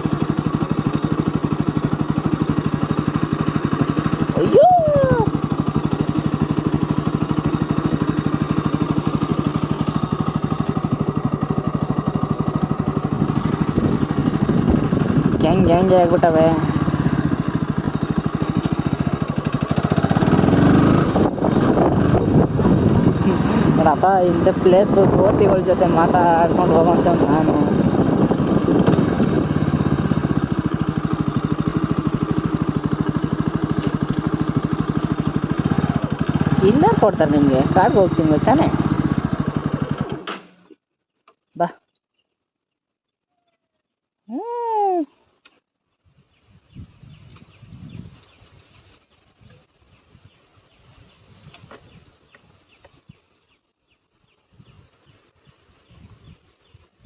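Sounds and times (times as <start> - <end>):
motorcycle engine running: 0.0 - 42.3.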